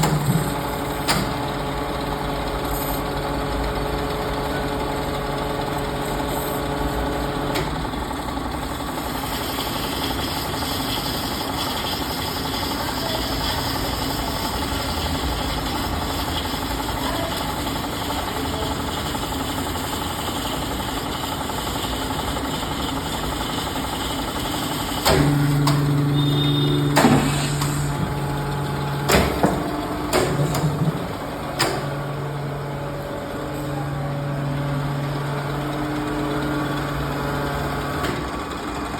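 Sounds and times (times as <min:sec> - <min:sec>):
bandsaw running: 0:08.8 - 0:33.2
sharp clunks: 0:29.0 - 0:31.0.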